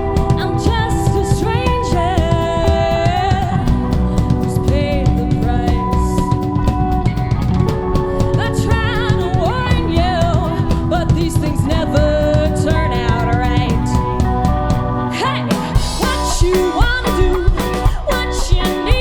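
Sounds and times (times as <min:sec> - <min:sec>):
bass drum and snare beat: 0:00.0 - 0:14.9, 0:15.5 - 0:19.0
live rock band playing: 0:00.0 - 0:19.0.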